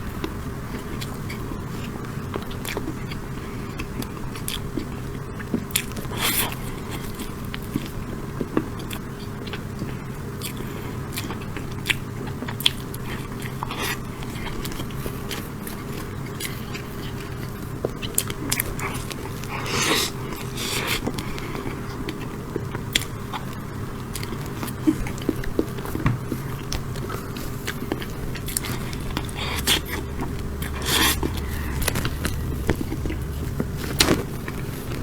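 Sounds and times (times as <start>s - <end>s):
low hum: 0.0s - 2.4s, 26.9s - 35.0s
biting and chewing: 0.0s - 35.0s.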